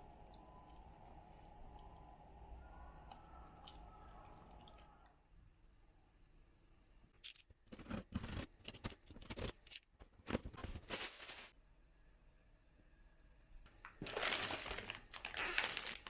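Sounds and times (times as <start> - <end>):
rustling handling sounds: 7.3 - 11.6, 13.8 - 16.0.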